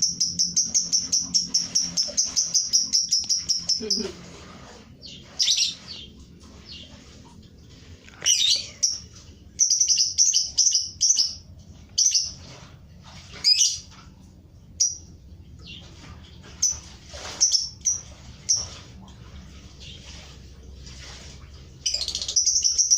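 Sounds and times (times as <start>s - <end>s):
pet birds chirping: 0.0s - 4.2s, 5.0s - 7.1s, 8.2s - 12.6s, 13.3s - 14.0s, 14.7s - 18.8s, 21.8s - 22.9s.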